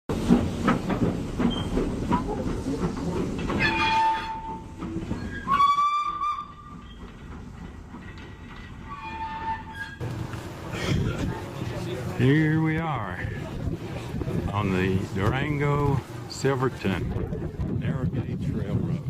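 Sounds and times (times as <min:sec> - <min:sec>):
steam locomotive clatter and hiss: 0:00.1 - 0:19.0
steam locomotive whistle: 0:03.6 - 0:06.7.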